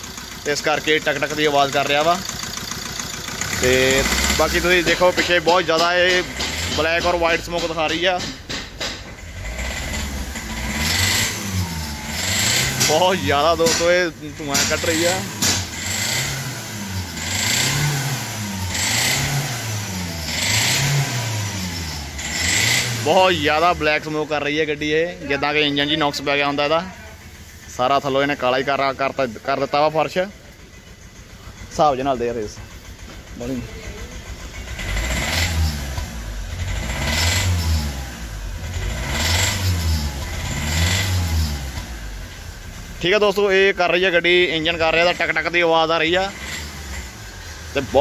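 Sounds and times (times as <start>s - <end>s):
diesel engine revving: 0.0s - 48.0s
engine knocking: 0.0s - 48.0s.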